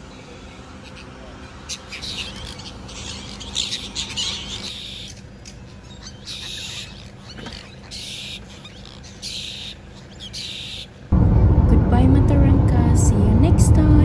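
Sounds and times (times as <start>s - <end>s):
flock of birds chattering: 0.0s - 11.1s
low hum: 11.1s - 14.0s.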